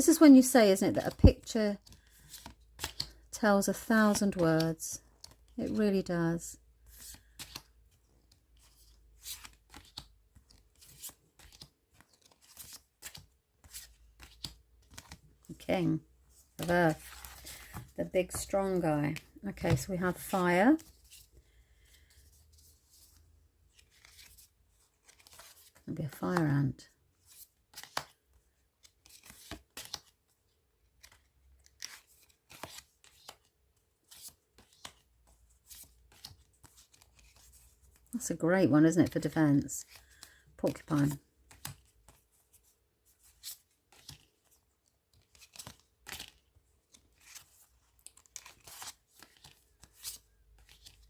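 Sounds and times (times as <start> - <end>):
cards sliding and tapping: 1.8 - 3.2, 45.2 - 51.0.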